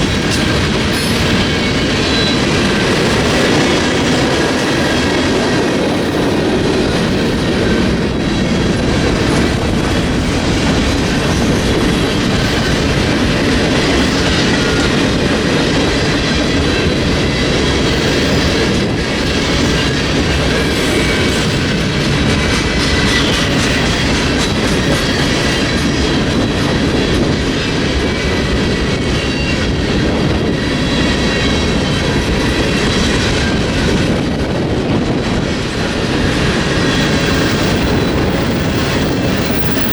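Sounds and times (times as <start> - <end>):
freight train cars rumbling: 0.0 - 39.9.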